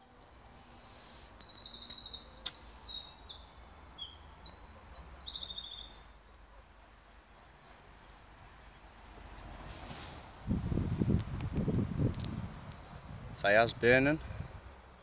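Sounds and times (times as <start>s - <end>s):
songbird chirping and trilling: 0.0s - 15.0s.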